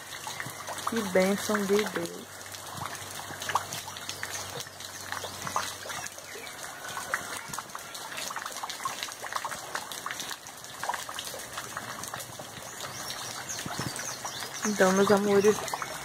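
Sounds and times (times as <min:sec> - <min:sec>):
rain splashing into puddles: 0:00.0 - 0:16.0.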